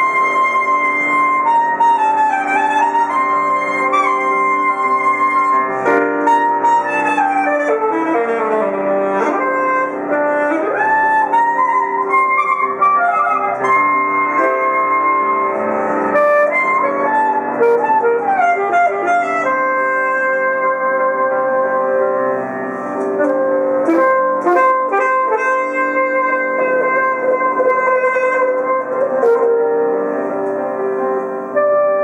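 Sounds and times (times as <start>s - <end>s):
alto saxophone: 0.0s - 32.0s
piano: 0.0s - 32.0s.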